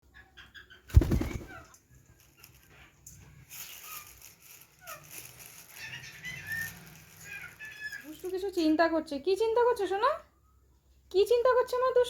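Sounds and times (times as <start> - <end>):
parrot chirping and squeaking: 3.7 - 8.3.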